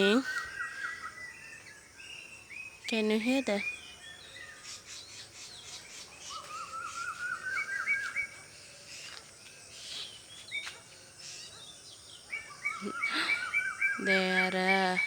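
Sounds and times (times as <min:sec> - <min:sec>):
birds chirping: 0:00.0 - 0:15.0
bird rising whistled notes: 0:06.3 - 0:08.3.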